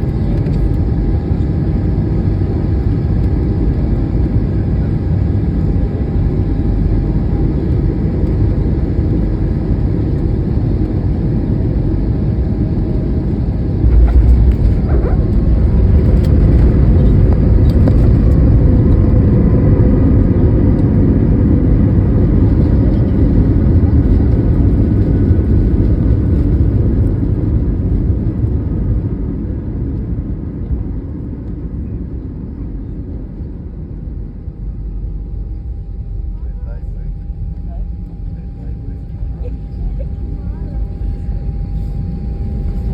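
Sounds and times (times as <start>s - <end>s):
vehicle engine rumbling: 6.2s - 29.1s.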